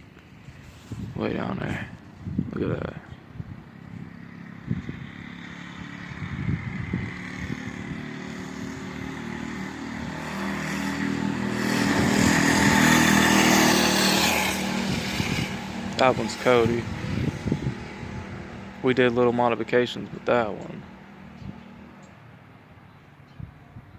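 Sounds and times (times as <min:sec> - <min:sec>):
mini bike engine approaching: 0:03.6 - 0:18.9.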